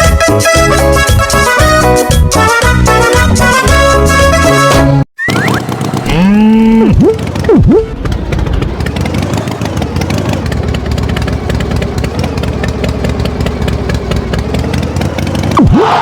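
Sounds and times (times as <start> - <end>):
cartoon tractor engine running: 0.0 - 16.0
sliding whistle tone: 5.2 - 5.6.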